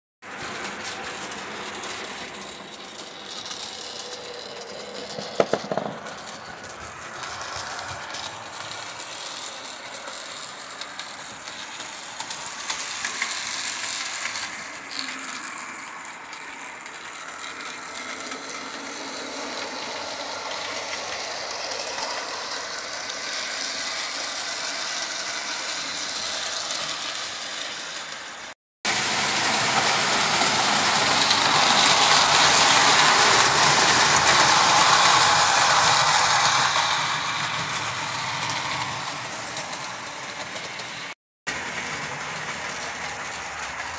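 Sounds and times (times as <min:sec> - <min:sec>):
model train gears whirring: 0:00.2 - 0:43.9.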